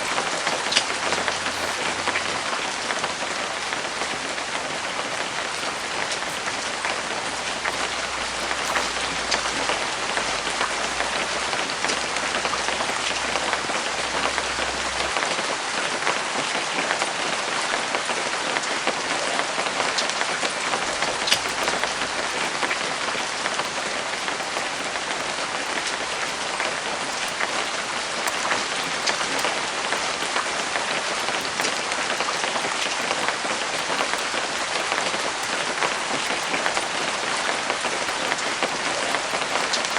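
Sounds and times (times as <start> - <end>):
raindrops ticking: 0.0 - 15.2, 20.8 - 39.9
steady rain falling: 0.0 - 15.2, 20.5 - 39.9.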